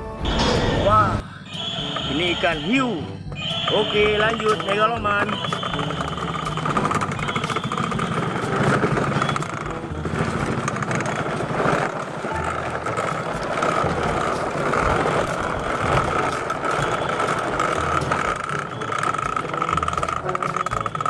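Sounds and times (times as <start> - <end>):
vehicle engine running: 1.2 - 21.0.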